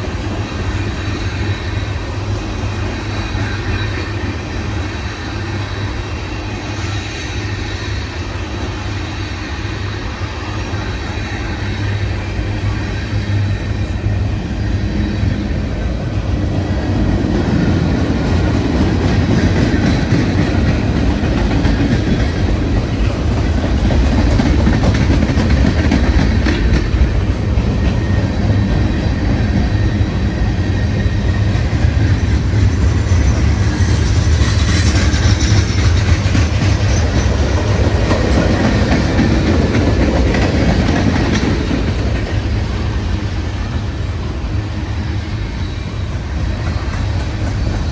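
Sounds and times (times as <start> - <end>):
railcars rumbling: 0.0 - 47.9
wheels clacking over rails: 17.1 - 29.7, 31.2 - 42.6.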